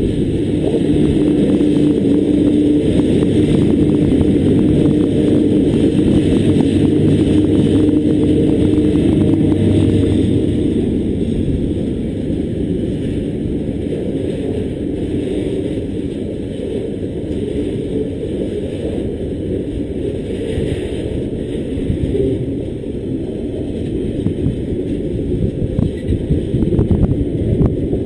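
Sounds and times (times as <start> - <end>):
locomotive engine drone: 0.0 - 28.0.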